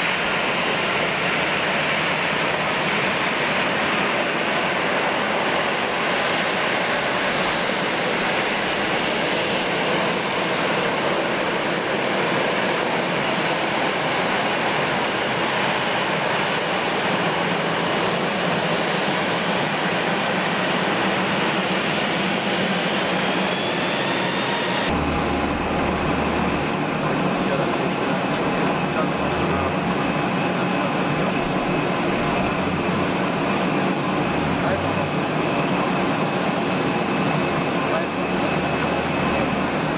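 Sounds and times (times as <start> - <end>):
jet engines running: 0.0 - 39.9
faint high whine: 23.5 - 35.2.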